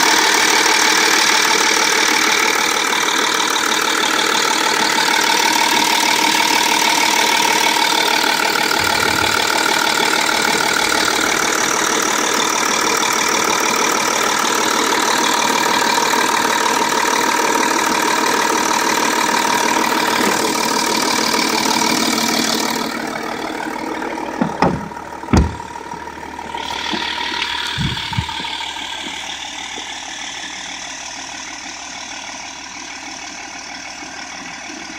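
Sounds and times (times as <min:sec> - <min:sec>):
diesel engine idling: 0:00.0 - 0:34.9
sharp thumps and bang: 0:24.4 - 0:25.8, 0:27.7 - 0:28.5.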